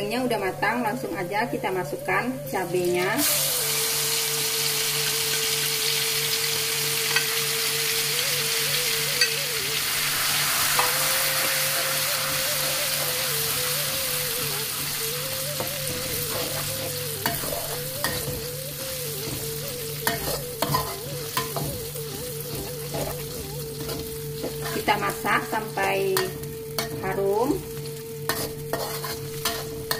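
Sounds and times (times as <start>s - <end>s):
chilies sizzling in hot oil: 0.0s - 29.9s
spatula scraping and tapping a pan: 19.2s - 25.1s, 28.2s - 29.9s.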